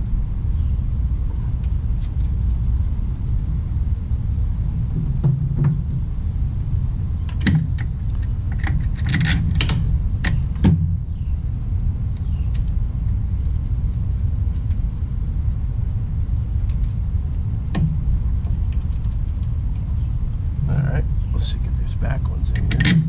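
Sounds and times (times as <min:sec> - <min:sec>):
low rumble: 0:00.0 - 0:23.0
metal tools clinking: 0:07.3 - 0:09.6, 0:22.5 - 0:23.0.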